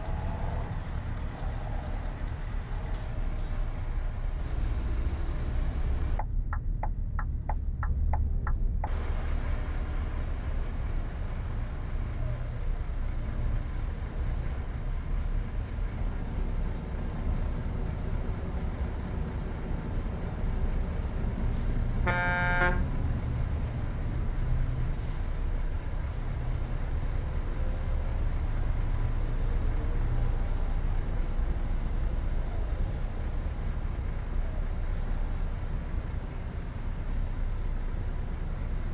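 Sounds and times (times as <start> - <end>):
diesel truck engine drone: 0.0 - 38.9
short horn toot: 22.0 - 22.9.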